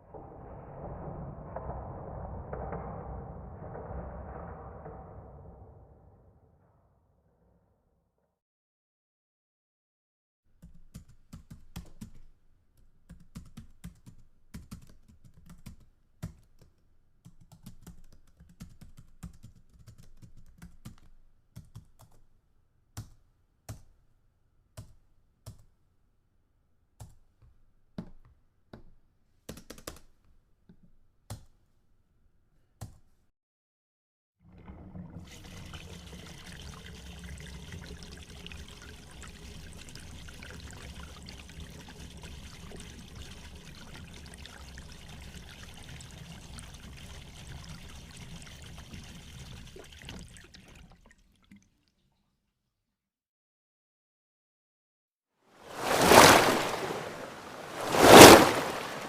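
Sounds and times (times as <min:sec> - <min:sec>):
steady rushing noise: 0:55.8 - 0:59.0.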